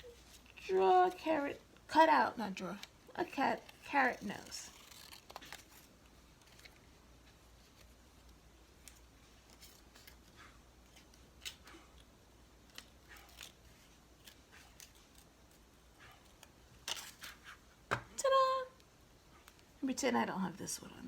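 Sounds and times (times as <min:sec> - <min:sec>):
scissors snipping paper: 0:03.5 - 0:05.9.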